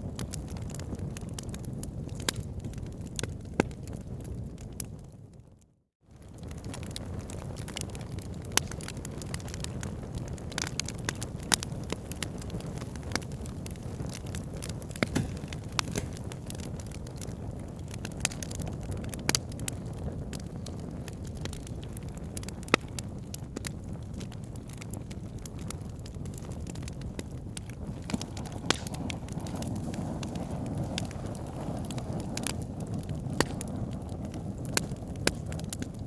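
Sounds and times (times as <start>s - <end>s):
fire crackling and popping: 0.0s - 5.5s, 6.1s - 36.0s
fire flames rumbling: 0.0s - 36.0s.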